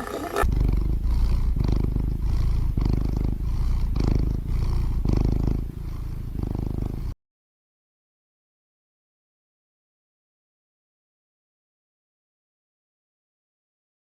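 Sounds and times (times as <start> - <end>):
cat purring: 0.0 - 7.2.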